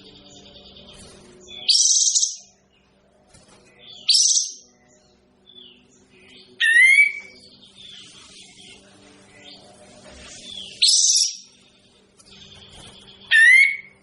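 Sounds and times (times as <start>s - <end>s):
songbird calling: 5.5s - 8.7s, 10.4s - 11.6s, 12.3s - 14.0s.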